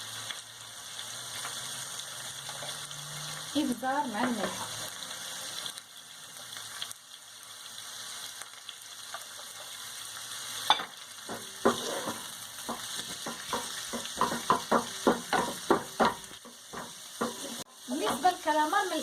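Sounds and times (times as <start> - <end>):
squid frying in oil: 0.0 - 19.0
utensil knocking against pan: 10.7 - 18.4.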